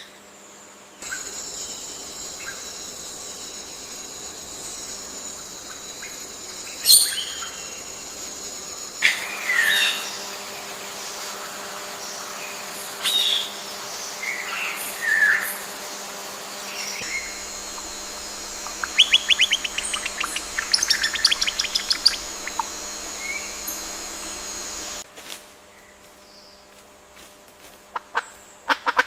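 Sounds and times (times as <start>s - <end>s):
birds chirping and chattering: 1.0s - 9.0s, 17.0s - 25.0s
background ambience: 1.0s - 25.1s.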